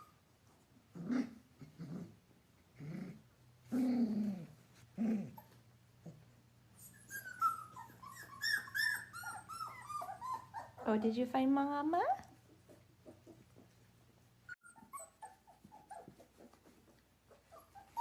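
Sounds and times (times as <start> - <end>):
puppies growling: 0.7 - 11.0, 12.2 - 18.0
puppies squealing and whimpering: 6.7 - 10.9, 14.5 - 18.0.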